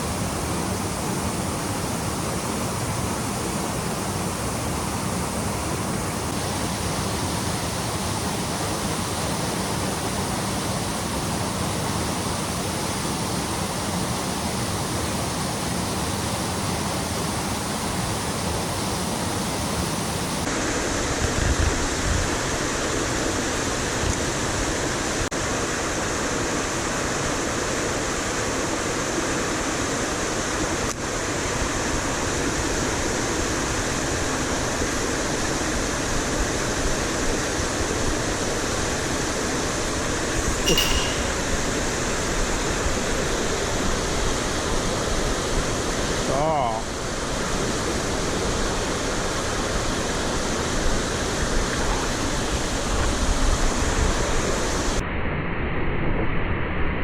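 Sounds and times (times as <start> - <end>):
stream and waterfall rushing: 0.0 - 21.5.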